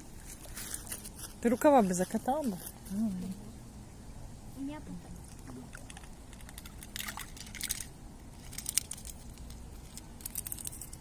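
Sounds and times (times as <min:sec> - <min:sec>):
low outdoor rumble: 0:00.0 - 0:11.0
crackling handling noise: 0:05.8 - 0:11.0.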